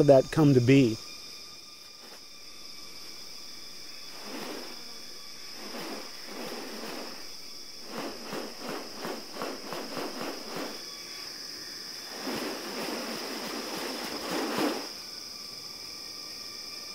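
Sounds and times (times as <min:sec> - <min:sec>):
insects droning chorus: 0:00.0 - 0:16.9
rapid pulses: 0:03.5 - 0:10.9, 0:12.0 - 0:15.0.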